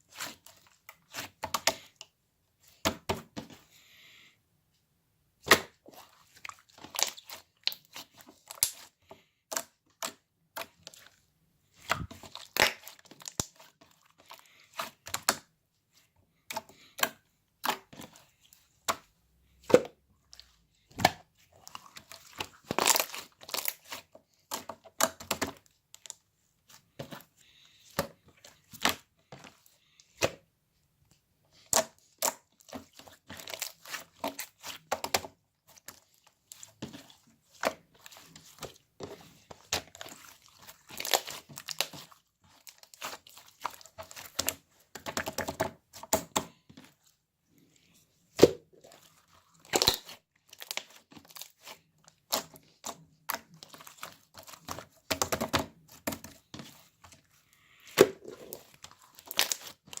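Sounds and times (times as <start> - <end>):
crinkling and tearing: 21.5 - 24.4, 35.7 - 45.1, 48.7 - 55.0, 57.6 - 60.0.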